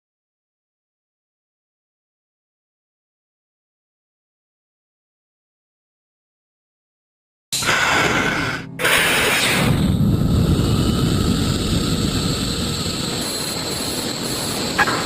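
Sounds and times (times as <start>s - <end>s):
rocket motor roaring: 7.6s - 15.0s.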